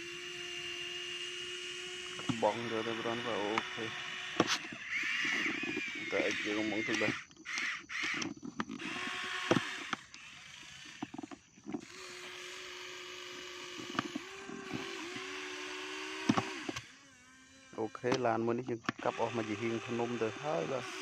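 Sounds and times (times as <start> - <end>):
toy car electric motor whine: 0.0 - 21.0
sharp clicks: 3.2 - 12.0.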